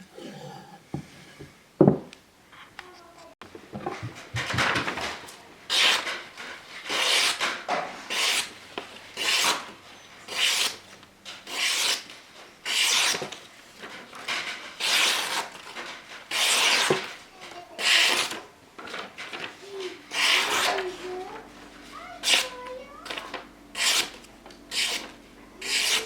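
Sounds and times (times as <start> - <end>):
knife scraping on whetstone: 20.1 - 20.8, 23.8 - 26.0.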